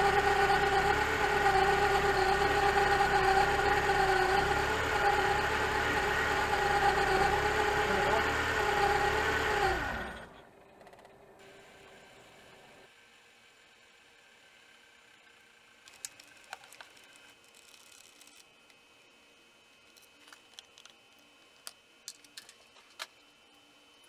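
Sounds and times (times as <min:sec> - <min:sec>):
car engine idling with whine: 0:00.0 - 0:12.9.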